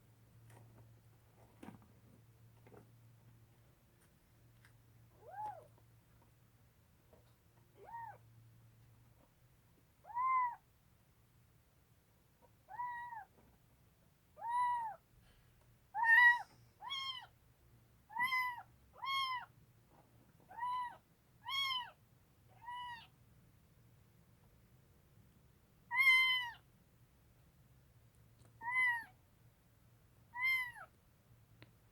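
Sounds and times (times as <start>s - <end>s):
kitten meowing: 5.2s - 5.7s, 7.8s - 8.2s, 10.0s - 10.6s, 12.7s - 13.3s, 14.4s - 15.0s, 16.0s - 17.3s, 18.1s - 19.5s, 20.5s - 22.0s, 22.6s - 23.1s, 25.9s - 26.6s, 28.6s - 29.1s, 30.3s - 30.9s.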